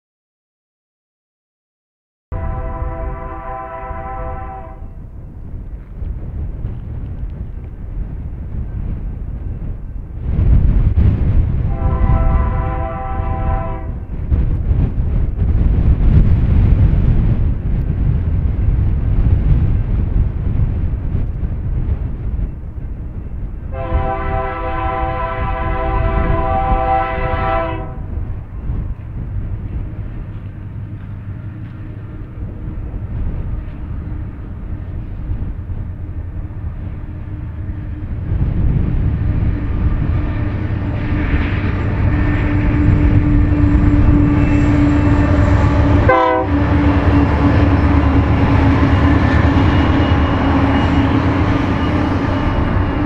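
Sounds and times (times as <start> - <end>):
train horn blast: 2.3 - 5.0, 11.6 - 14.1, 23.7 - 28.2, 39.8 - 53.0
freight train rumbling past: 2.3 - 53.0
locomotive engine hum: 2.4 - 53.0.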